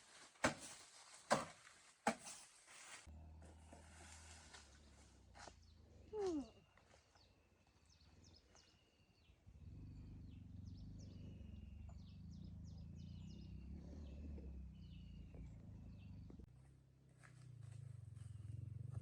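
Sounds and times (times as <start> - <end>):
low steady rumble: 3.1 - 6.2, 9.4 - 19.0
birds chirping: 4.8 - 16.5.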